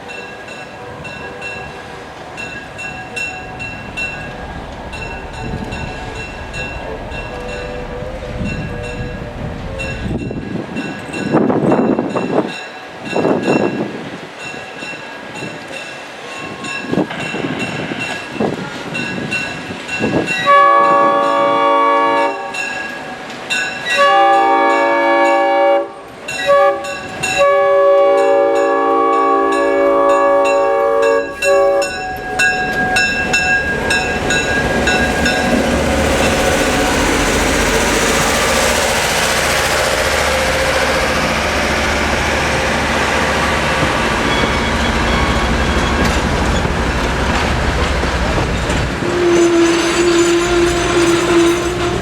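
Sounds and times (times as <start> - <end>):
train rumble approaching: 0.0 - 14.4, 26.0 - 52.0
locomotive air horn blasts: 20.5 - 22.6, 24.0 - 35.3, 49.0 - 52.0.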